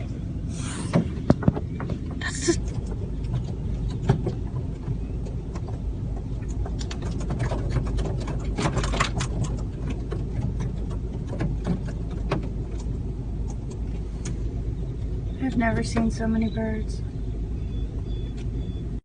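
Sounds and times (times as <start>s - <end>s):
car rumble inside cabin: 0.0s - 19.0s.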